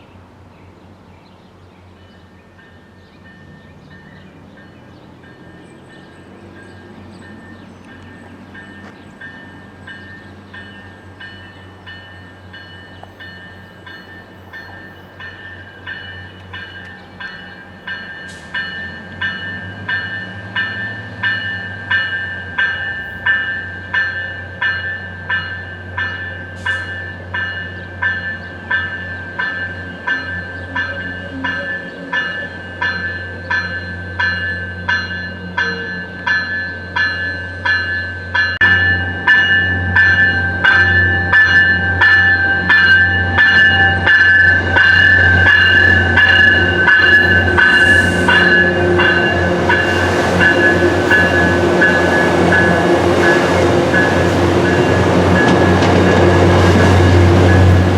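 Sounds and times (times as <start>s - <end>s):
bell ringing: 2.6s - 57.9s
low locomotive rumble: 27.1s - 57.9s.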